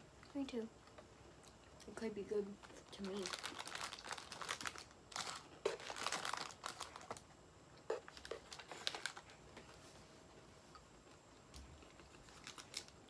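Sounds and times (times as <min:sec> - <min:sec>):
snack packaging rustling: 0:02.6 - 0:07.3, 0:07.9 - 0:09.8, 0:11.7 - 0:13.0.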